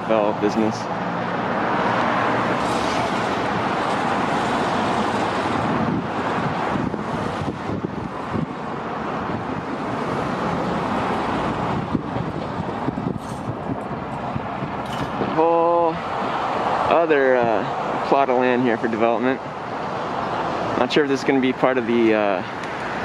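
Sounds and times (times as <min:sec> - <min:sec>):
road traffic rushing: 0:00.0 - 0:23.0.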